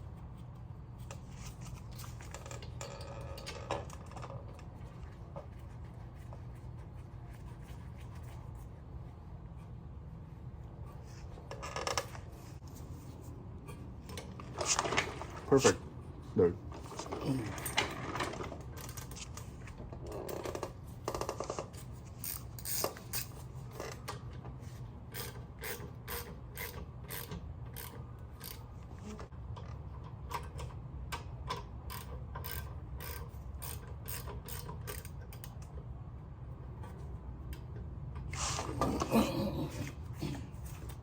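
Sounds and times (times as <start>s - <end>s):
steady low hum: 0.0s - 41.0s
ratchet wrench clicking: 22.2s - 23.3s, 25.1s - 28.7s, 31.6s - 35.6s.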